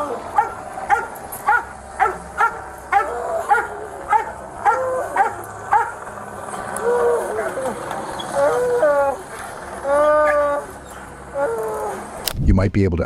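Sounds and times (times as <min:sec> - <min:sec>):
dog barking: 0:00.0 - 0:06.0
dog whining: 0:00.0 - 0:12.2.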